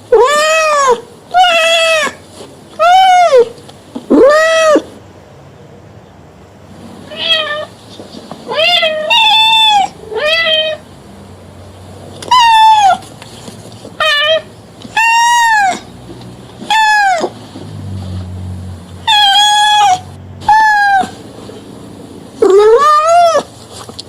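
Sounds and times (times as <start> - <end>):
cat meowing: 0.1 - 2.2, 2.8 - 3.5, 4.1 - 4.9, 7.1 - 7.7, 8.5 - 10.8, 12.3 - 13.1, 14.0 - 15.9, 16.6 - 17.4, 19.0 - 21.2, 22.4 - 23.5.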